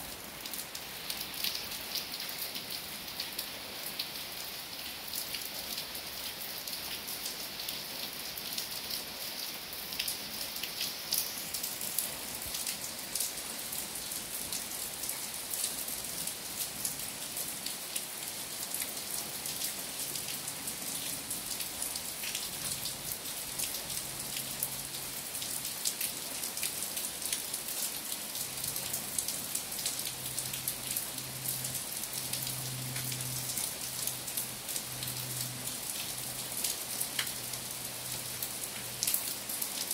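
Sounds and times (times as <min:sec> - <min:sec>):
rain falling on leaves: 0:00.0 - 0:39.9
raindrop ticks: 0:28.8 - 0:37.6.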